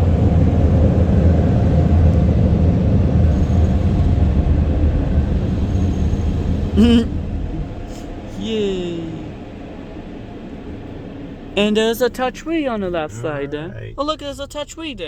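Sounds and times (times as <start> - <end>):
air dryers blowing: 0.0 - 14.0.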